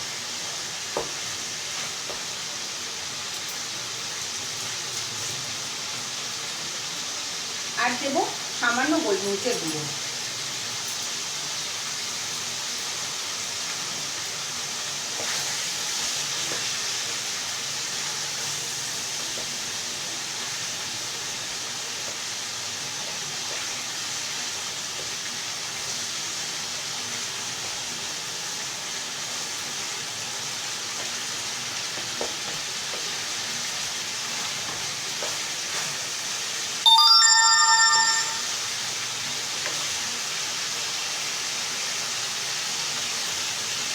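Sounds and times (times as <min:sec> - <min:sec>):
chicken sizzling in oil: 0:00.0 - 0:43.9
loud multi-tone ring: 0:36.9 - 0:38.6.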